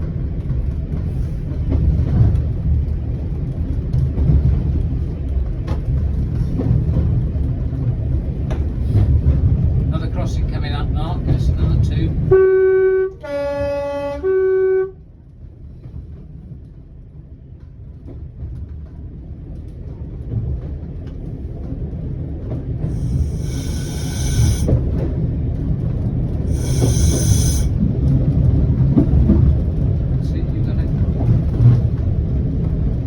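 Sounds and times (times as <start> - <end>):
railcar rumbling on rails: 0.0 - 33.0
train horn blasts: 12.3 - 15.1, 22.9 - 24.7, 26.5 - 27.8
shrill high-pitched squeal: 23.0 - 24.7, 26.5 - 27.7.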